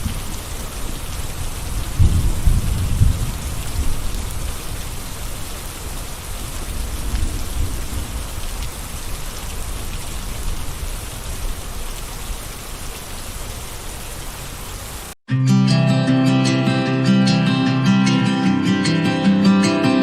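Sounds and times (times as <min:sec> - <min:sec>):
gentle rain falling: 0:00.0 - 0:15.2.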